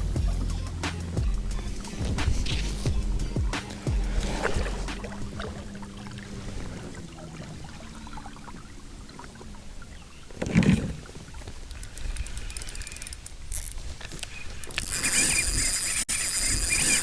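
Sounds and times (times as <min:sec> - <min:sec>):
water splashing: 0:00.0 - 0:17.0
light clicks: 0:11.7 - 0:17.0.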